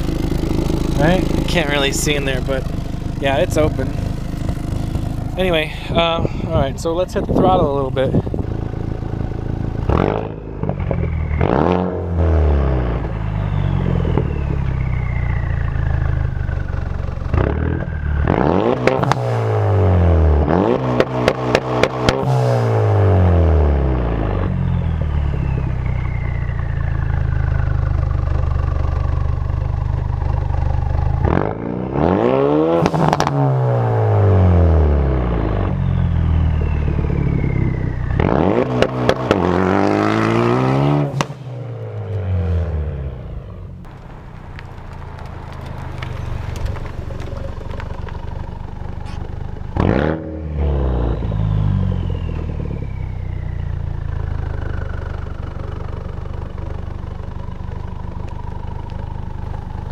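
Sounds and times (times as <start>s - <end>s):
exhaust pops crackling: 0.0s - 11.8s, 20.8s - 22.5s, 32.7s - 34.2s, 35.1s - 50.2s
car engine revving: 0.0s - 59.9s
thin turbo whistle: 35.6s - 38.2s, 50.8s - 53.8s.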